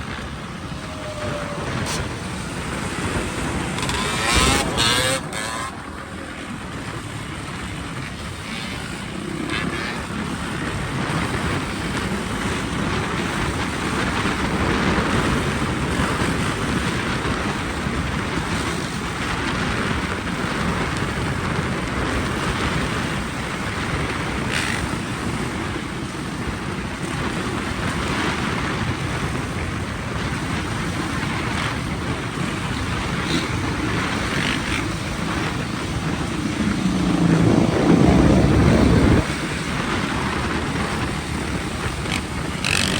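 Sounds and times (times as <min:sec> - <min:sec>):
dirt bike engine: 0:00.0 - 0:16.8, 0:29.5 - 0:42.9
road noise: 0:00.0 - 0:42.9
wind rush over microphone: 0:00.0 - 0:42.9.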